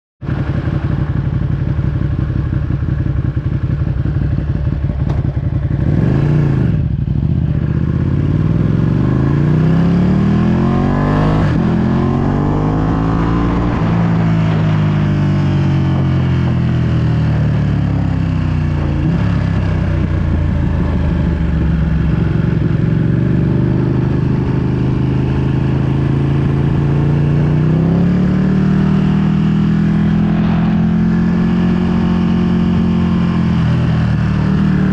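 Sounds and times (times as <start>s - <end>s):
motorcycle engine revving: 0.2s - 34.9s
wind noise on microphone: 18.9s - 28.2s.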